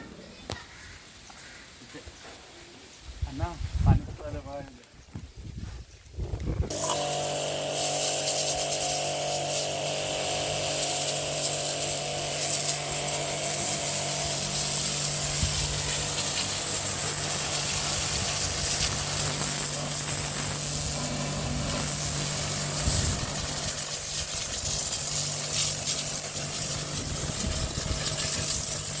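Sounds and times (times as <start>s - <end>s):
pressure washer motor hum: 6.7s - 29.0s
water spray hissing: 6.7s - 29.0s.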